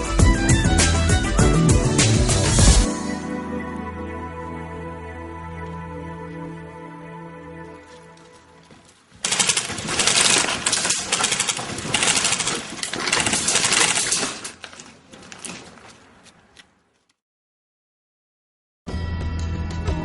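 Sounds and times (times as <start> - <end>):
airsoft guns firing bursts: 9.2 - 14.6.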